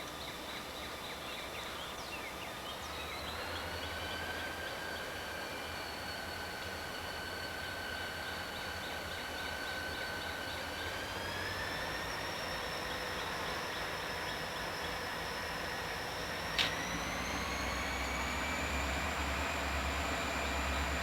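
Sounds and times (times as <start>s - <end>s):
sharp click: 16.6s - 16.9s.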